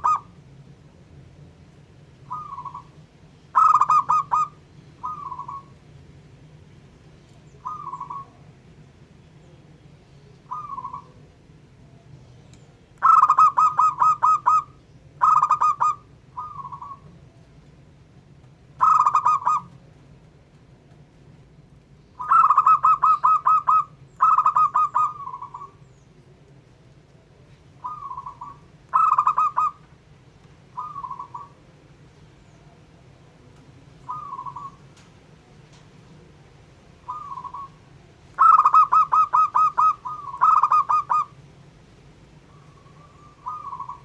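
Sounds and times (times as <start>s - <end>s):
dove cooing: 0.0s - 0.4s, 2.2s - 5.8s, 7.5s - 8.5s, 10.5s - 11.3s, 13.0s - 17.2s, 18.8s - 19.8s, 22.2s - 26.0s, 27.7s - 30.0s, 30.6s - 31.7s, 33.9s - 35.1s, 37.0s - 41.4s, 42.4s - 44.0s
faint low hum: 0.0s - 44.0s.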